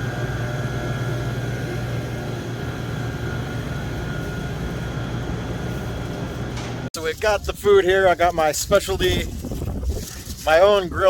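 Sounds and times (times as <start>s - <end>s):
low machine hum: 0.0s - 8.2s.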